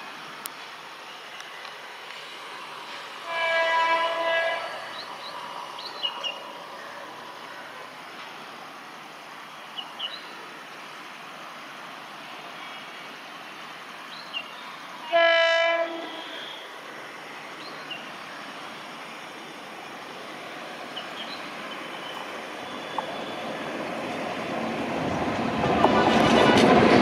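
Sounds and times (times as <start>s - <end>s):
approaching train noise: 0.0s - 27.0s
locomotive horn blast: 3.2s - 4.8s, 15.0s - 16.6s.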